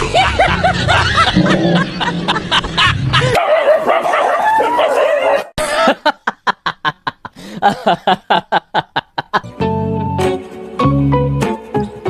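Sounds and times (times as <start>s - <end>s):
dog yapping: 3.4s - 5.5s.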